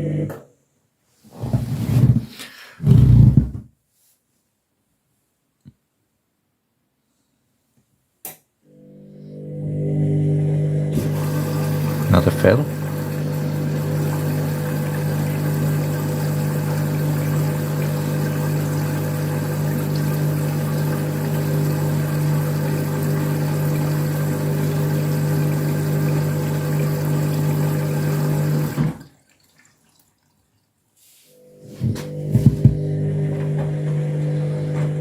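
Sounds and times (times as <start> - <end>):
water rushing into washing machine: 10.9 - 30.7, 31.4 - 35.0.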